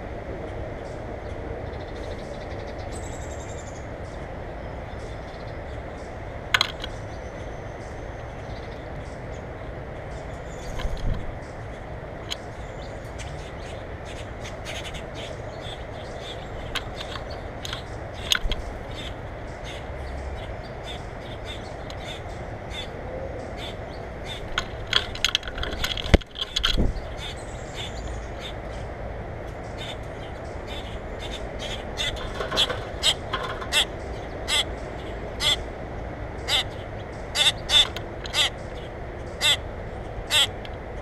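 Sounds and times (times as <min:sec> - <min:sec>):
birds giving sharp calls: 0:10.4 - 0:40.6.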